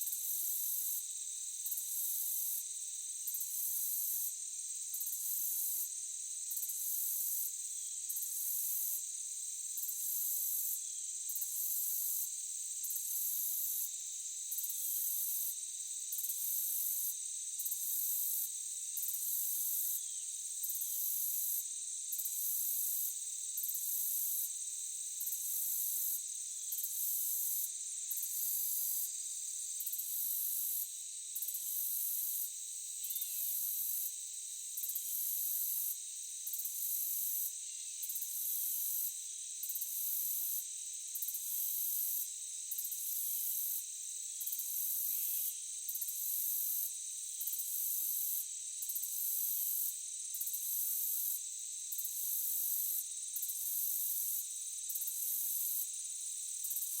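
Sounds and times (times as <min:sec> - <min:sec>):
high-pitched pulsing insect chorus: 0:03.2 - 0:57.0
crickets trilling: 0:32.7 - 0:38.2.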